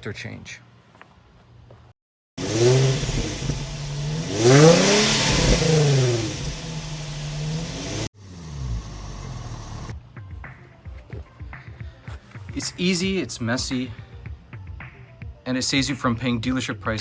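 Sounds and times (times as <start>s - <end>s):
loud exhaust noise: 2.4s - 10.0s
car engine revving: 2.4s - 10.8s
engine running quietly: 2.4s - 10.8s.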